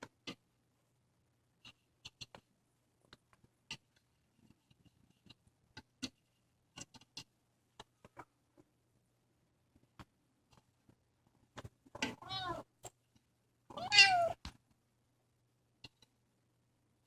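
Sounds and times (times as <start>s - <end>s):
kitten meowing: 12.2s - 12.6s, 13.7s - 14.4s.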